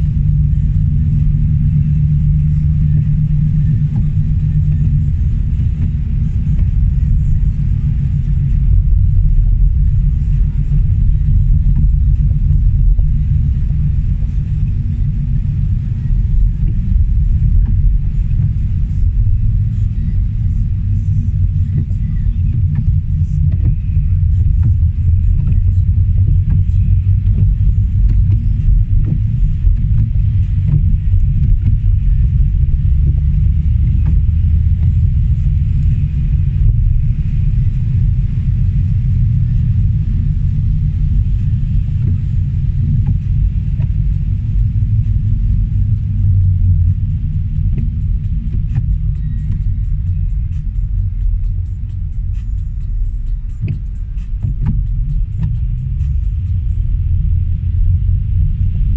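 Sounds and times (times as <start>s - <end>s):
car interior rumble: 0.0s - 58.9s.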